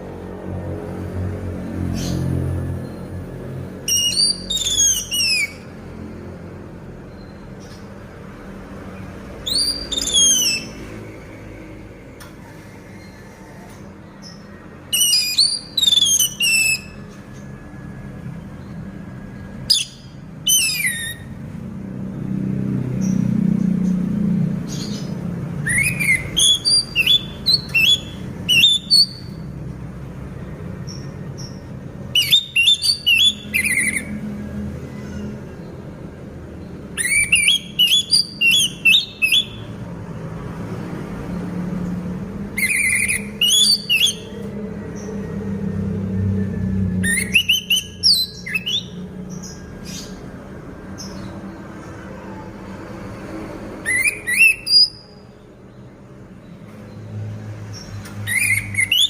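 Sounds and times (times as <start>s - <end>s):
bird singing high whistled notes: 3.9s - 5.8s, 9.4s - 11.0s, 14.3s - 17.2s, 19.6s - 21.4s, 24.8s - 29.4s, 30.9s - 34.2s, 36.9s - 39.7s, 42.5s - 44.4s, 46.8s - 50.2s, 53.8s - 55.2s, 58.2s - 59.0s.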